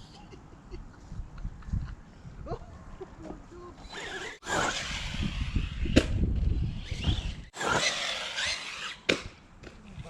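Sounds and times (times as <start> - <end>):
electric rc buggy running: 3.8 - 9.1.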